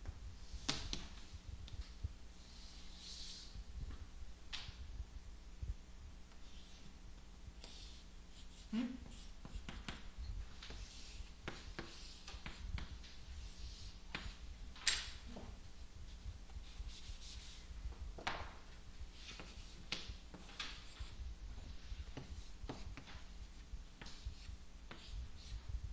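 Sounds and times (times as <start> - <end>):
low room hum: 0.0 - 25.9
scratchy writing strokes on board: 7.6 - 14.5, 15.3 - 17.7, 19.1 - 25.7.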